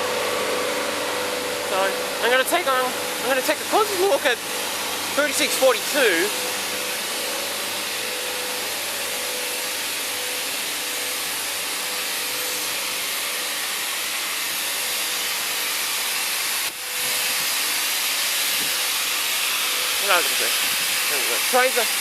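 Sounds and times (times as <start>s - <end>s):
steam hissing: 0.0s - 22.0s.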